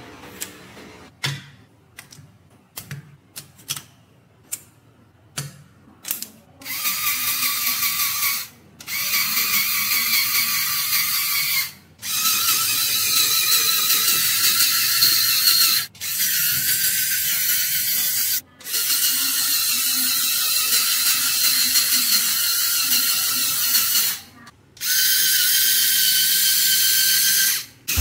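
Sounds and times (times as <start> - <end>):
toy car motors whirring: 6.1 - 28.0.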